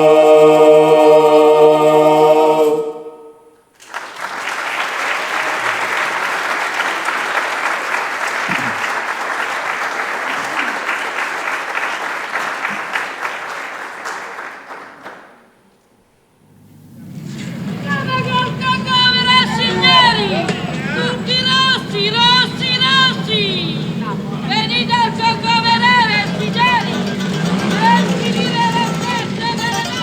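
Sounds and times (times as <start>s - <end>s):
choir holding a chord: 0.0s - 3.6s, 16.4s - 30.0s
audience applauding: 3.7s - 15.7s, 16.5s - 30.0s.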